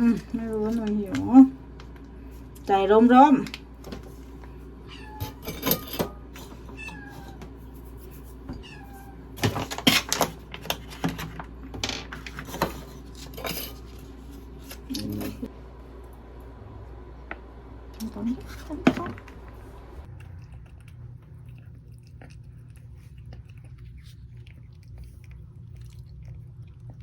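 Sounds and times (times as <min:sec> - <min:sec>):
kitten chewing clicks: 0:20.1 - 0:27.0.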